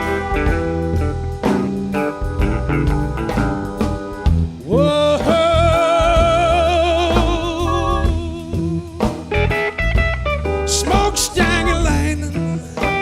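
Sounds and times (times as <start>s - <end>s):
guitar lead line held note: 0.0s - 4.4s, 7.0s - 8.6s, 9.4s - 13.0s
blues-rock band playing: 0.0s - 13.0s.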